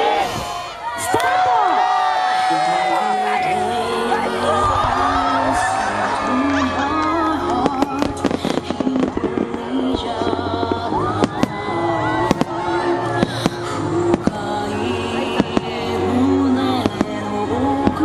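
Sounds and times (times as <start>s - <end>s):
music playing: 0.8s - 18.0s
fireworks bursting and crackling: 5.9s - 18.0s.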